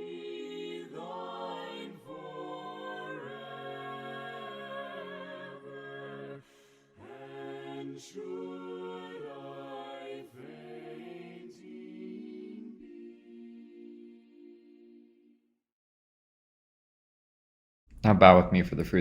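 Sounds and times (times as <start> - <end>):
a cappella voices singing hymn: 0.0 - 15.4.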